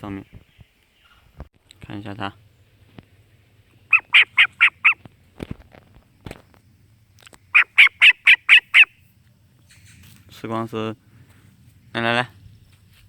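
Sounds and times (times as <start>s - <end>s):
starling calling: 3.7s - 5.2s, 7.3s - 9.1s.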